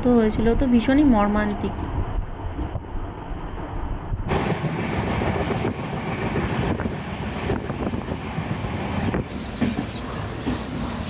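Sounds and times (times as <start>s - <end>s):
train rumbling: 0.0s - 11.0s
train wheels clicking over rail joints: 2.5s - 11.0s.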